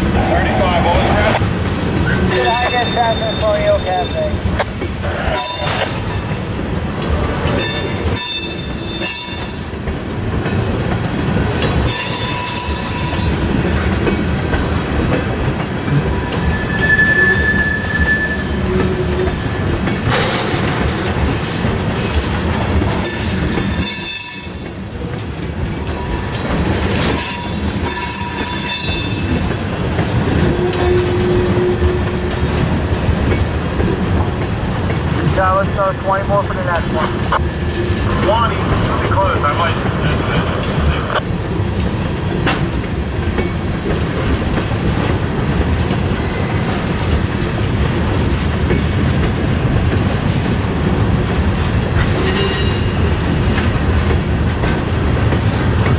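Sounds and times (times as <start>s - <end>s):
train cars rumbling: 0.0s - 55.9s
wheels clacking over rail joints: 1.3s - 35.4s, 36.8s - 55.9s
wheels squealing: 16.4s - 19.3s, 46.2s - 46.9s.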